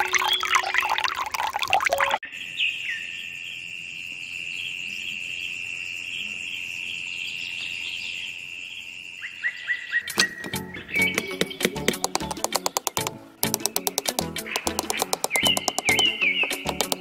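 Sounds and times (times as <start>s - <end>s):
short insect chirp: 2.2s - 10.1s
insects trilling: 2.3s - 10.1s.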